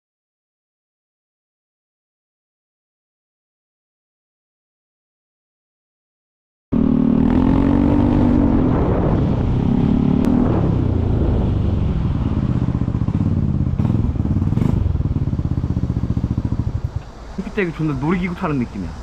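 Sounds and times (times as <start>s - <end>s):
road and wind noise: 6.7s - 19.0s
vehicle engine running: 6.7s - 19.0s.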